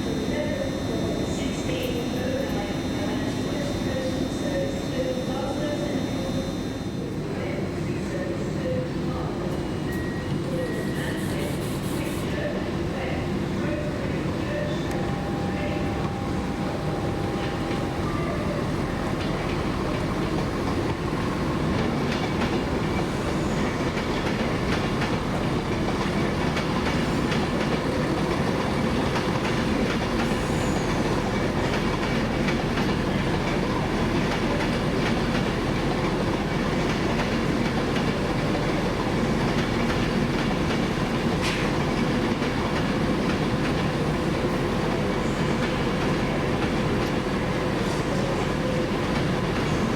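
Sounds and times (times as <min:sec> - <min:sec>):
train wheels clattering on track: 0:18.9 - 0:49.9.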